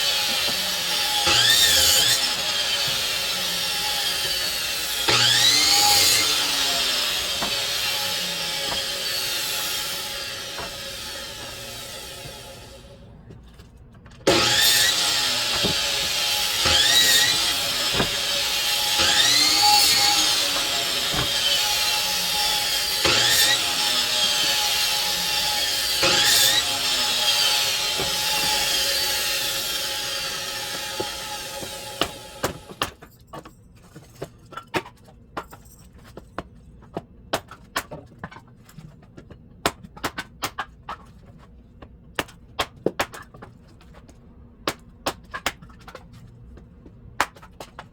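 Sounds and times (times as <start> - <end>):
power saw cutting wood: 0.0 - 13.1, 14.3 - 32.9.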